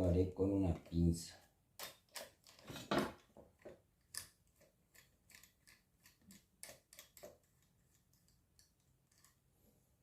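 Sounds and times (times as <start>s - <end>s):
pliers clicking on screws: 1.8s - 2.6s, 4.0s - 7.4s.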